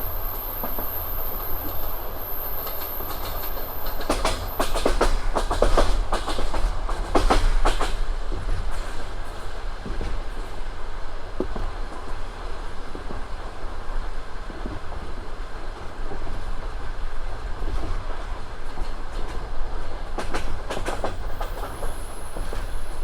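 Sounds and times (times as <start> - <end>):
high wheel squeal: 0.0 - 5.0, 21.1 - 23.0
train wheels rumbling and clacking: 0.0 - 23.0.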